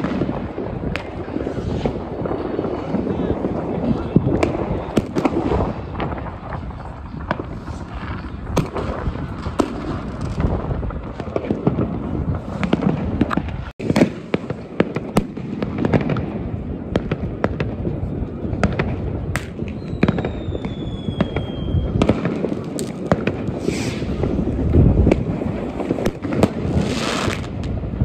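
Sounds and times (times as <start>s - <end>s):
fireworks crackling and rumbling: 0.0s - 28.0s
fireworks sharp bangs: 0.0s - 28.0s
falling whistle: 19.8s - 22.0s.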